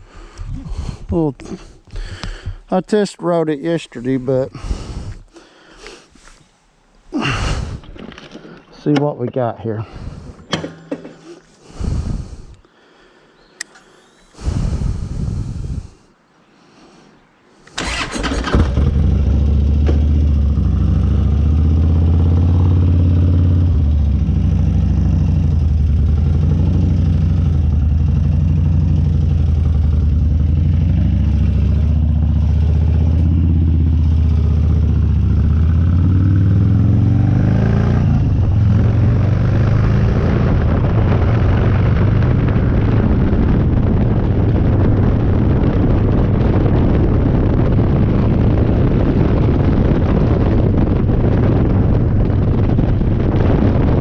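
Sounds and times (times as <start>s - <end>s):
wind noise: 4.0s - 5.4s, 7.1s - 8.7s, 9.7s - 12.6s, 14.3s - 16.1s, 29.3s - 54.0s
motorcycle engine idling and revving: 10.0s - 11.5s, 17.8s - 54.0s.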